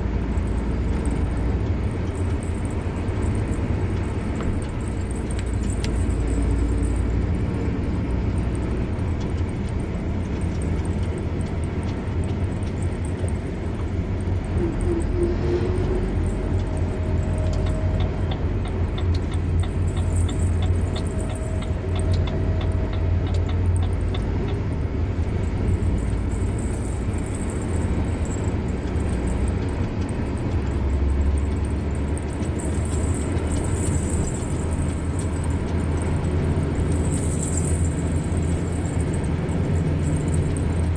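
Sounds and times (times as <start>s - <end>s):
car engine and tyre rumble: 0.0s - 40.9s
quick even ticking: 15.8s - 26.5s.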